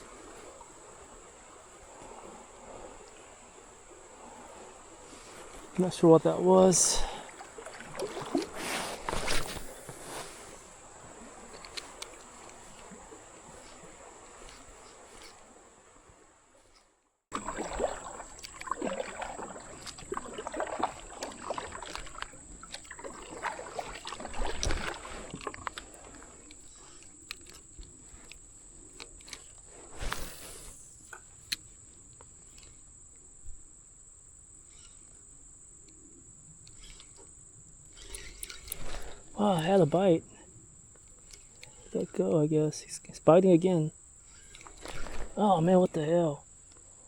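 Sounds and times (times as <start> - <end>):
water sloshing around kayak: 0.0 - 47.0.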